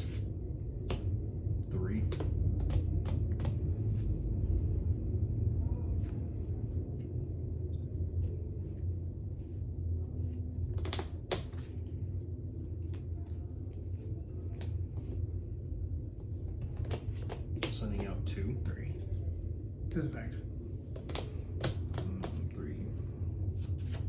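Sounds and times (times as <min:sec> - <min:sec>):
low room hum: 0:00.0 - 0:24.0
trading cards tapping on a table: 0:02.1 - 0:03.6, 0:10.7 - 0:11.7, 0:16.6 - 0:18.2, 0:20.9 - 0:22.4.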